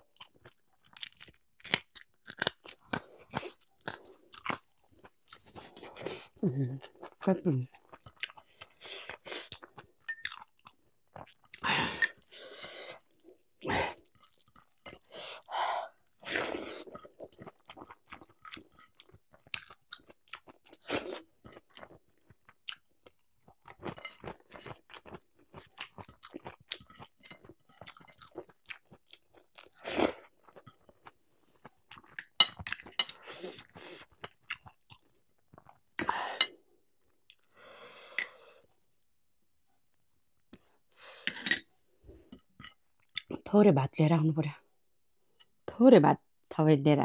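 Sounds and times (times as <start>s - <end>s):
person chewing food: 0.0s - 38.8s, 39.9s - 43.4s
food crunching: 0.1s - 5.8s, 16.2s - 36.0s.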